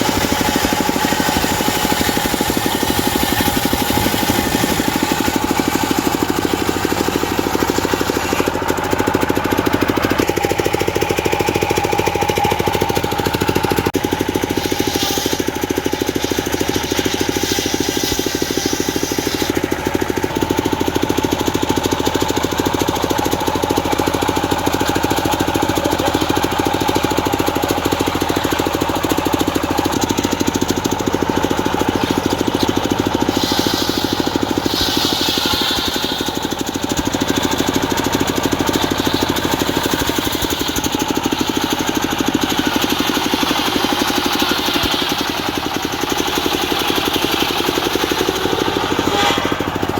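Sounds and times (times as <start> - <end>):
diesel engine knocking: 0.0 - 49.9
high hissing: 32.0 - 36.7.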